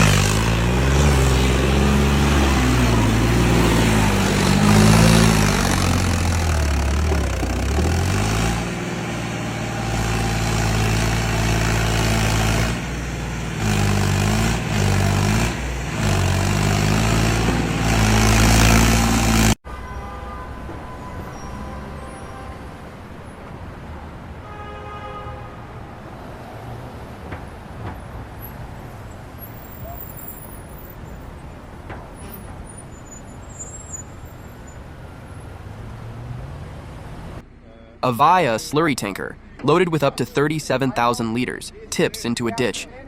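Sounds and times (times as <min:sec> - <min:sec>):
heavy vehicle engine running: 0:00.0 - 0:19.6, 0:27.0 - 0:43.0
outdoor vehicle noise: 0:00.0 - 0:43.0
vehicle horn toot: 0:19.7 - 0:23.0, 0:24.4 - 0:26.0.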